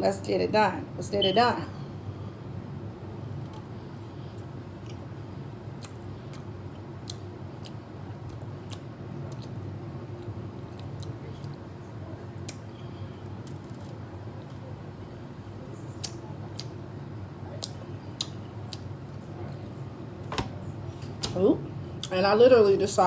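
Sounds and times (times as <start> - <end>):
steady low hum: 0.0 - 23.0
wet mouth clicks: 5.8 - 9.6
chewing: 5.8 - 11.6.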